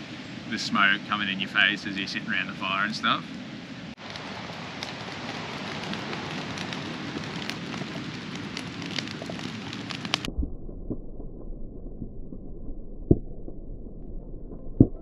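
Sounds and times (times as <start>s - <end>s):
campfire crackling and popping: 0.4s - 15.0s.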